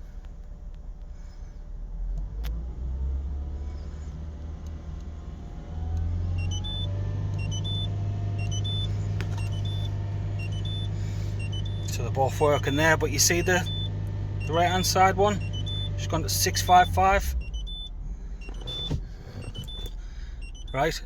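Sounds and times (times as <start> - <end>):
car engine running: 0.0 - 21.0
repeating short electronic beeps: 6.4 - 17.9.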